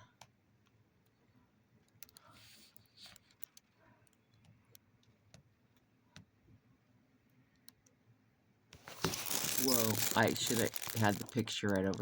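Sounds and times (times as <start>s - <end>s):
faint small clicks and ticks: 0.0s - 6.6s, 7.2s - 8.1s.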